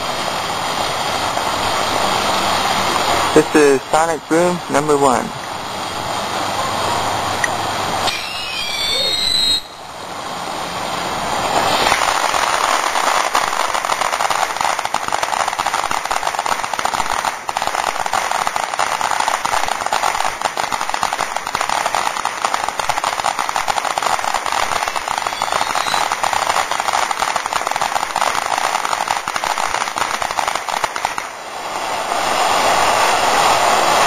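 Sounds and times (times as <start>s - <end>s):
firework crackling: 0.0s - 34.0s
firework whistling: 6.9s - 34.0s.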